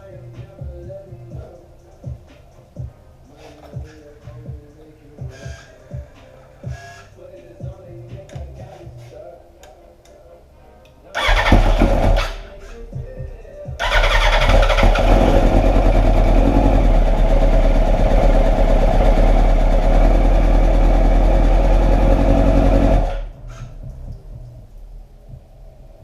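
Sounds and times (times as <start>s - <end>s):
motorcycle engine starting and running: 11.2s - 12.4s, 13.8s - 24.2s.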